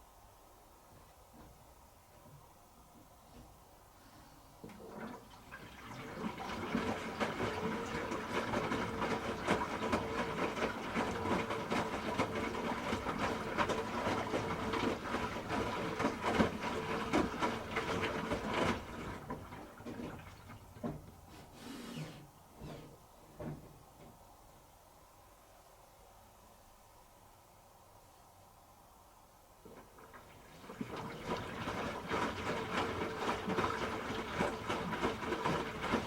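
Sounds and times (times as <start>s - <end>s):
faint steady hum: 0.0s - 34.6s
water rushing in washing machine: 4.6s - 22.8s, 29.6s - 36.0s
faint knocks: 22.1s - 24.2s.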